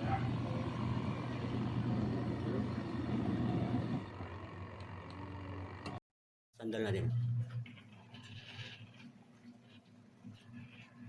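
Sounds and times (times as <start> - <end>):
washing machine motor humming: 0.0 - 6.0.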